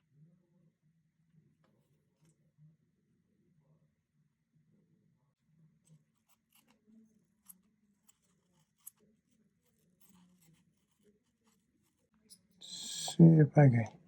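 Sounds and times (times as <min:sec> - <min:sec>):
faint clicks and scratching of tools: 0:01.4 - 0:02.7, 0:05.3 - 0:12.9.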